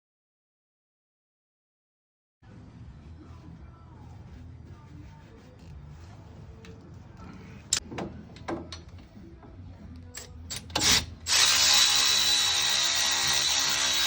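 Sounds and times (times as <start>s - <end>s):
metal tools knocking and clinking: 7.7s - 9.0s
power tool running: 10.6s - 14.0s.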